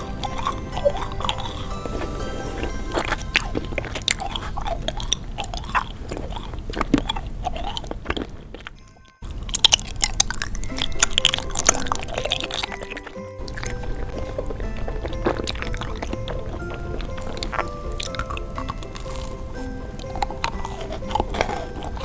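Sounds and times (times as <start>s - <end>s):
music: 0.0s - 5.0s, 10.4s - 22.0s
crunchy bites and chewing: 0.0s - 22.0s.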